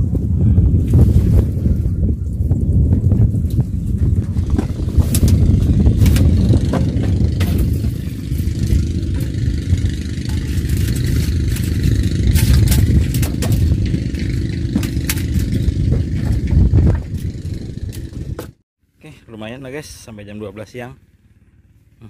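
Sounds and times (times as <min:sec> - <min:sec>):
steady low rumble: 0:00.0 - 0:18.6
fishing rod clicks and rattles: 0:04.3 - 0:18.5.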